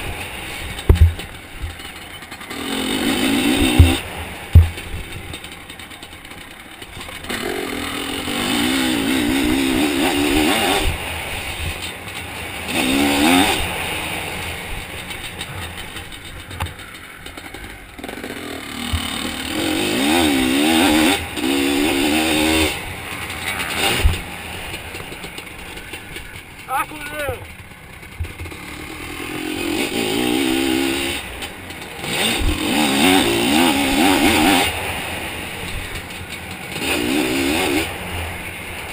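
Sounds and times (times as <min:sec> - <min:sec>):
two-stroke engine revving: 0:00.0 - 0:38.9
sharp knocks: 0:00.8 - 0:01.8, 0:03.6 - 0:05.4.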